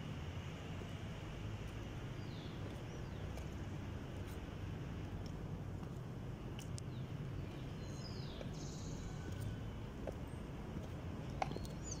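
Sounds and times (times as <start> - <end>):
low background rumble: 0.0 - 12.0
bird chirping: 2.2 - 3.6, 6.8 - 10.5, 11.2 - 12.0.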